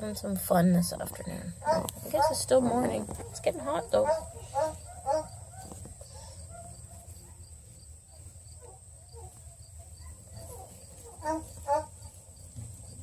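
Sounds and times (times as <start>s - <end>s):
puppies squeaking and whimpering: 1.2s - 6.9s, 10.0s - 12.0s.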